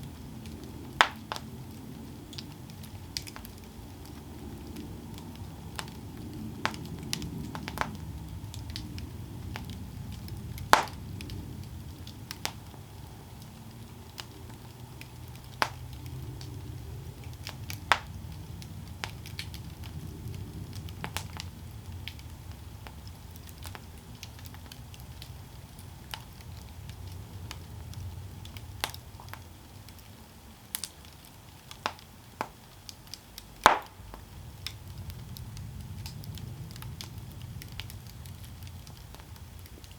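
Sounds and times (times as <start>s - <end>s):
crackles and wood pops: 0.0s - 39.9s
low rumble of flames: 0.0s - 39.9s.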